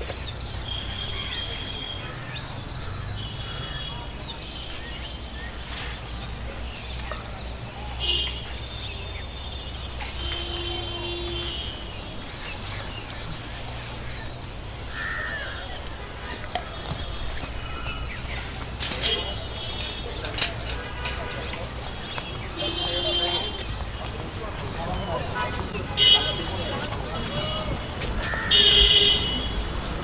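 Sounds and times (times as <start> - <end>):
bird calls: 0.0 - 30.0.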